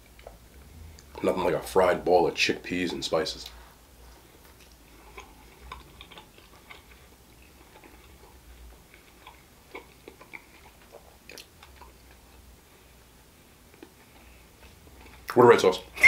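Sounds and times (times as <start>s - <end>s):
person chewing crunchy food: 4.2s - 12.6s, 13.5s - 15.3s.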